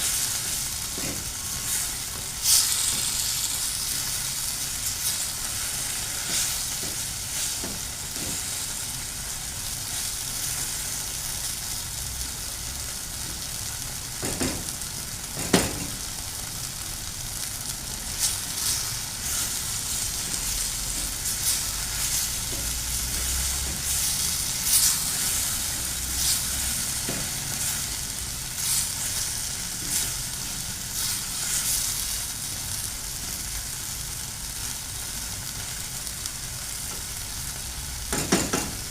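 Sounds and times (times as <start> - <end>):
utensil stirring in pan: 0.0 - 11.7, 18.0 - 32.7
food sizzling in a frying pan: 0.0 - 38.9
knocks against pan: 38.1 - 38.8.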